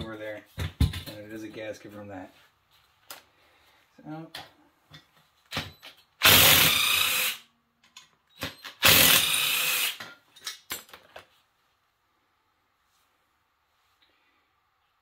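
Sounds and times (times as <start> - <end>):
cordless drill running: 6.2 - 7.4, 8.8 - 10.0.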